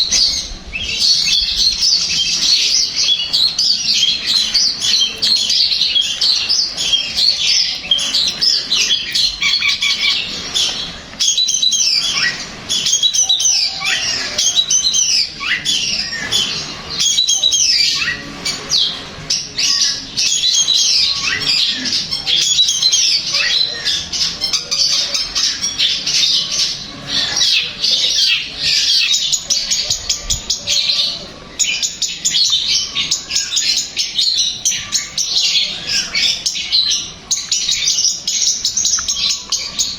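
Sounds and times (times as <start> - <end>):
bird singing scratchy chatter: 0.0 - 39.9.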